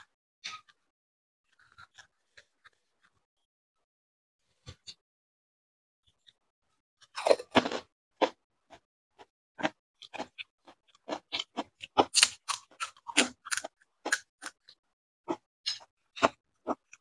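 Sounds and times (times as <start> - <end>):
person crunching crisp shells: 11.0 - 14.6.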